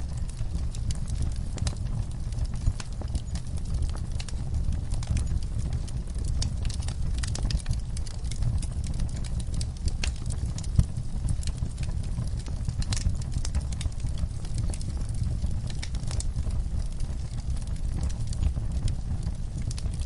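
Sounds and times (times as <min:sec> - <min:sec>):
low rumble of flames: 0:00.0 - 0:20.0
wood fire crackling: 0:00.0 - 0:20.0.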